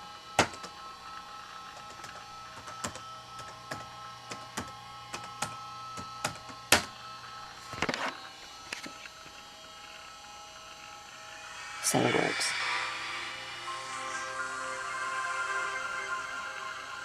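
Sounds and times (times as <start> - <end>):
laptop whine and hum: 0.0 - 17.0
laptop keys clicking: 1.8 - 6.9.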